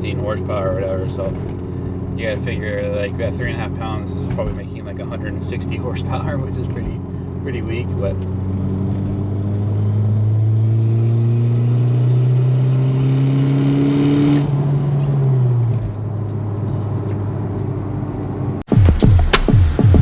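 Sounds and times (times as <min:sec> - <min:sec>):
car engine revving: 0:18.7 - 0:20.0
turbo hiss: 0:18.7 - 0:20.0.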